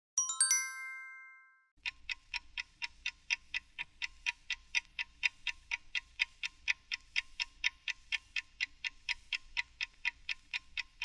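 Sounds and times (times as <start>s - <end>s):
bright chime: 0.2s - 1.8s
clock-like ticking: 1.8s - 11.0s.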